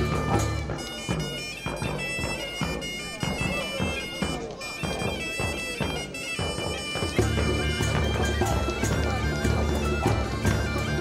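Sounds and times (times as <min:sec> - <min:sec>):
drum beat: 0:00.0 - 0:11.0
reedy wind instrument melody: 0:00.0 - 0:11.0.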